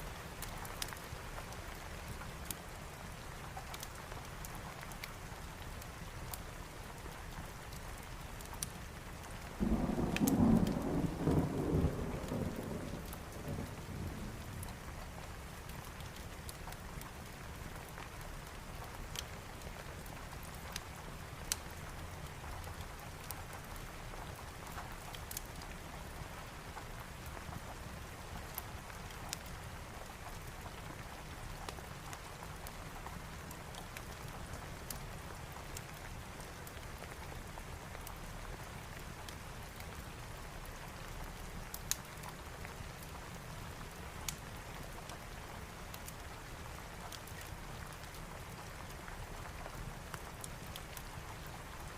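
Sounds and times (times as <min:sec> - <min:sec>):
steady rain hiss: 0:00.0 - 0:51.9
wood fire crackling and popping: 0:00.4 - 0:02.6, 0:03.5 - 0:06.5, 0:08.4 - 0:09.4, 0:10.1 - 0:10.8, 0:15.6 - 0:25.8, 0:28.4 - 0:38.2, 0:38.8 - 0:51.9.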